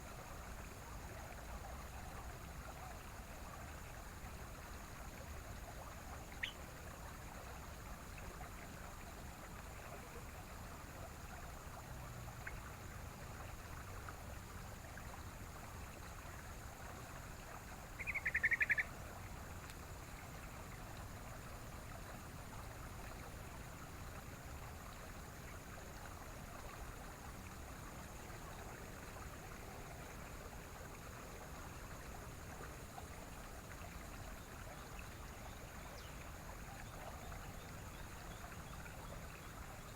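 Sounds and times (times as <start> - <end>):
bird call notes: 18.0 - 18.9.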